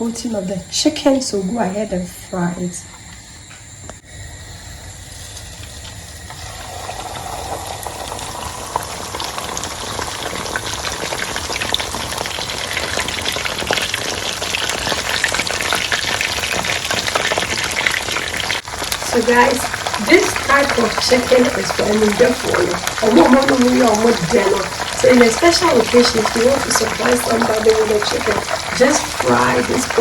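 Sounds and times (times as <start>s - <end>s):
chicken frying in hot oil: 5.2s - 30.0s.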